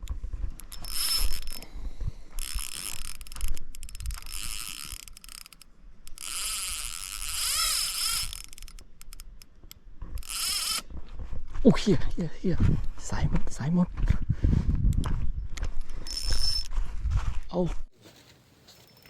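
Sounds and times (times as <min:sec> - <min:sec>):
fishing reel ratchet whirring: 0:00.6 - 0:01.7, 0:02.3 - 0:09.5, 0:10.2 - 0:10.8, 0:15.8 - 0:16.7.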